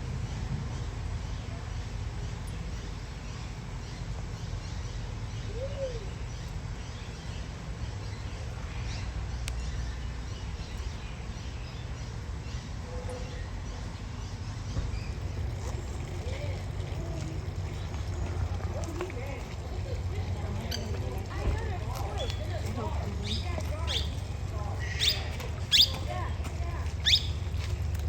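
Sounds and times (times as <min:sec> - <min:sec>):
birds chirping softly: 0:00.0 - 0:28.0
steady low rumble: 0:06.1 - 0:28.0.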